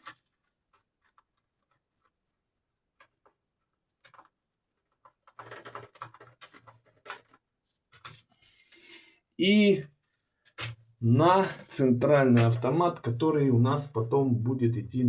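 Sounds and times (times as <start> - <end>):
scraping and rustling clicks: 0.0 - 2.2, 2.9 - 9.0.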